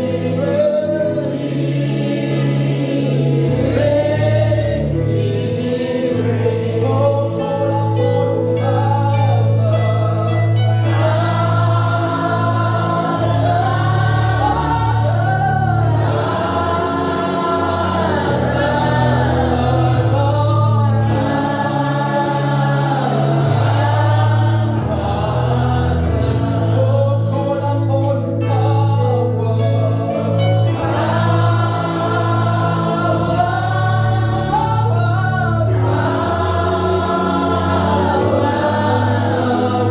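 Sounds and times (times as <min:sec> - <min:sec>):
choir singing gospel song: 0:00.0 - 0:39.9
instrumental accompaniment: 0:00.0 - 0:39.9.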